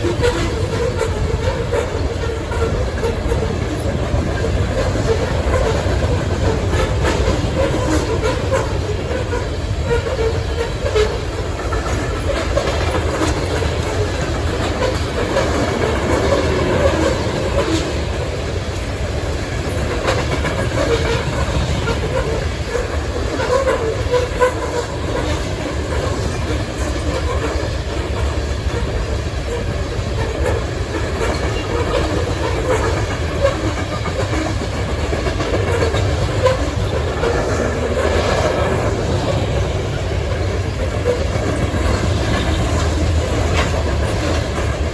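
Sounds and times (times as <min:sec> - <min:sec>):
freight train rolling past: 0:00.0 - 0:44.9
wheels clicking over rail joints: 0:00.0 - 0:44.9.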